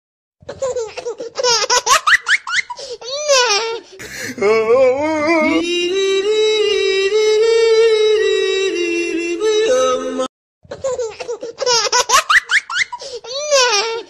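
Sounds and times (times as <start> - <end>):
wavering voice: 4.0 - 10.3.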